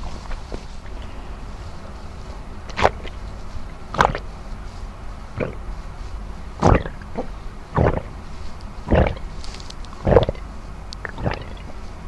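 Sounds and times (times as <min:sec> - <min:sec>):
person gulping water: 0:10.1 - 0:10.4, 0:11.0 - 0:11.6.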